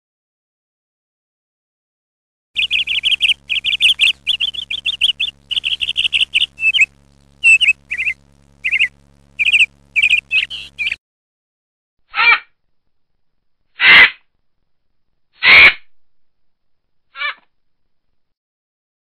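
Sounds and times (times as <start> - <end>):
bird chirping: 2.6 - 11.0
faint low hum: 2.6 - 11.0.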